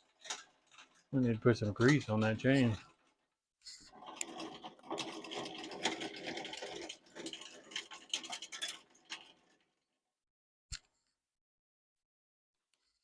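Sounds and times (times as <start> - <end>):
chain and sprockets clicking: 0.0 - 3.2, 3.9 - 9.7.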